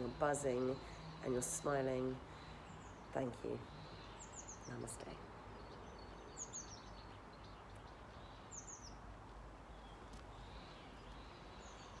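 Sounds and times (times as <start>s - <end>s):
faint outdoor background noise: 0.0s - 12.0s
songbird chirping phrase: 0.0s - 12.0s.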